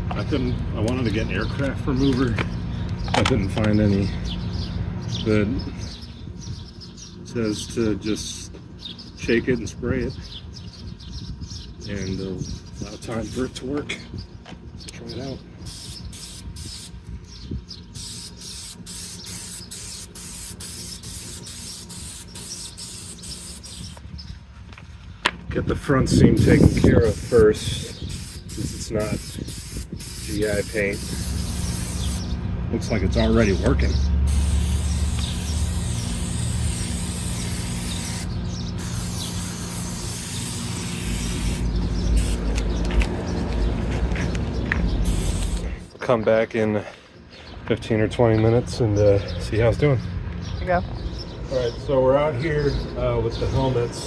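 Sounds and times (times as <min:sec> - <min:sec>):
aerosol spray hissing bursts: 0:15.7 - 0:17.0, 0:18.0 - 0:24.0, 0:26.4 - 0:32.3, 0:34.3 - 0:42.6, 0:45.0 - 0:45.9.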